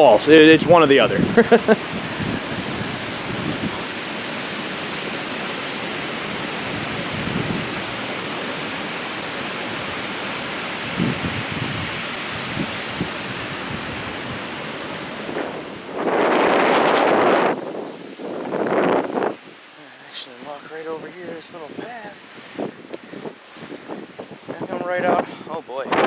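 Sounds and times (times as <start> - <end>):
water pouring over waterfall: 0.0 - 16.3.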